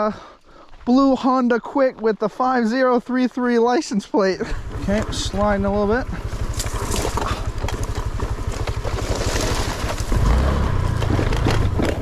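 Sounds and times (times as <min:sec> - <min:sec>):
scooter engine running: 0:04.4 - 0:12.0.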